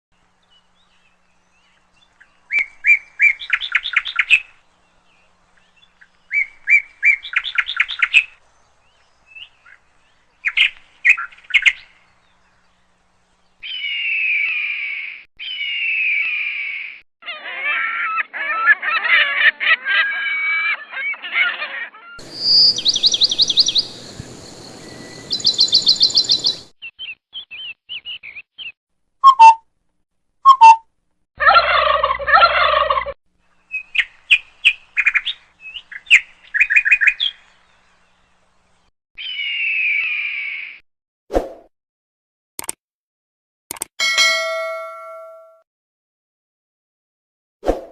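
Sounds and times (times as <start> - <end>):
tangle of bird calls: 0.3 - 29.6, 31.4 - 40.8
trilled bird chirps: 22.1 - 29.7, 30.5 - 30.9
long falling bird whistles: 22.2 - 27.2.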